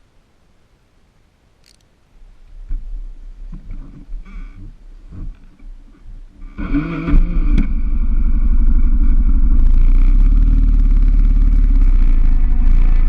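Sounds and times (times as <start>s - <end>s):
motorcycle engine starting and running: 6.4s - 13.0s.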